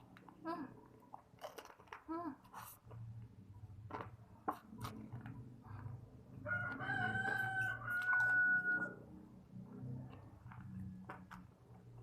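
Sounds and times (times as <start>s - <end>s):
rooster crowing: 6.4s - 9.1s.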